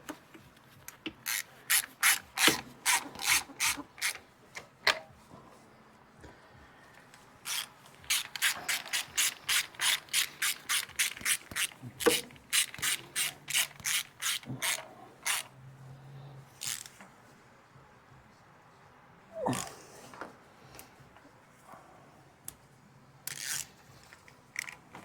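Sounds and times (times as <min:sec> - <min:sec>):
ratchet wrench clicking: 0:01.1 - 0:04.2, 0:07.4 - 0:15.5, 0:16.6 - 0:17.0, 0:23.3 - 0:24.8.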